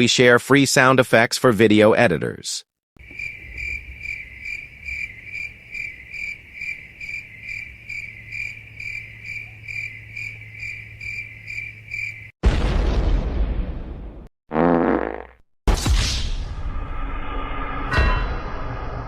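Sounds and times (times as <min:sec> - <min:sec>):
cricket chirping: 0:03.0 - 0:12.4.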